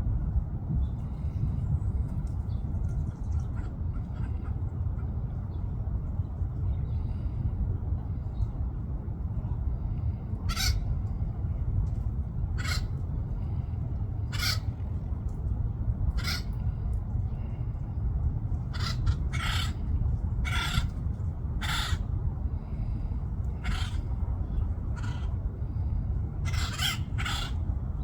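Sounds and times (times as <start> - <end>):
steady low rumble: 0.0 - 28.0
woodpecker harsh calls: 10.5 - 10.8, 14.3 - 14.6, 18.7 - 19.8, 20.4 - 20.9, 21.6 - 22.0, 23.6 - 24.0, 25.0 - 25.3, 26.5 - 27.6.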